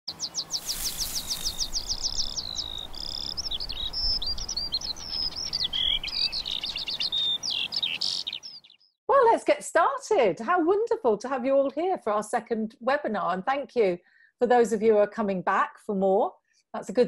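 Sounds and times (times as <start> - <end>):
birdsong: 0.1 - 9.0.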